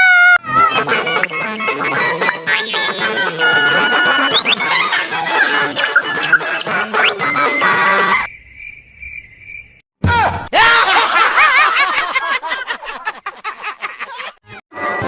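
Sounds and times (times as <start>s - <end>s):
high warbling cartoon voice: 0.4s - 8.3s
steady high-pitched tone: 3.2s - 7.4s.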